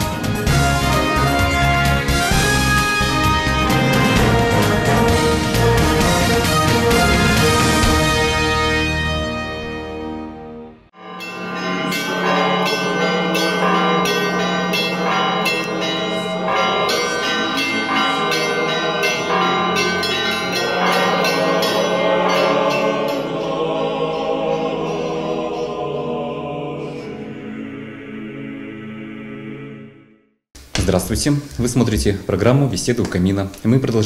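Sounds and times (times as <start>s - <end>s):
church bells pealing: 0.1s - 9.8s, 11.0s - 27.8s.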